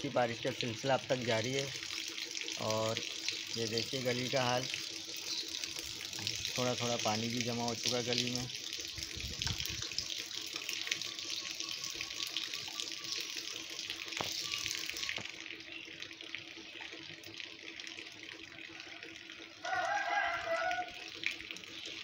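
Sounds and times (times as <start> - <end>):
light rain falling: 9.9 - 22.0.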